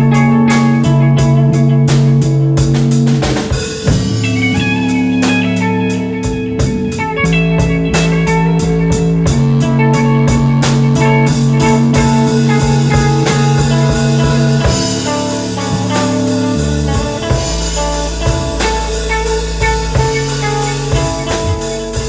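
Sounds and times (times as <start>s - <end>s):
drum kit beat: 0.0s - 22.0s
guitar lines: 0.0s - 22.0s
held bass notes: 0.0s - 22.0s.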